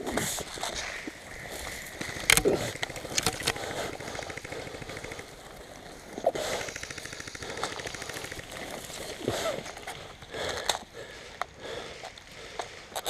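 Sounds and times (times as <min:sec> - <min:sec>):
airsoft gun full-auto burst: 0:02.0 - 0:10.2.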